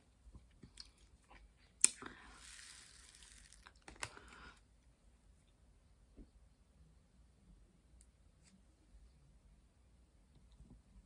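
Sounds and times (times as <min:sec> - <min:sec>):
beads rustling when poured: 0:02.3 - 0:03.8.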